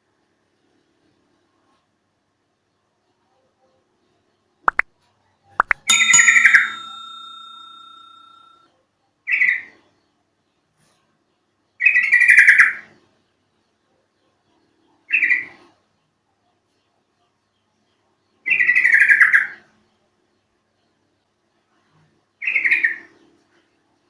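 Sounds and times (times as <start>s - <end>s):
ringing tone: 5.6s - 8.6s.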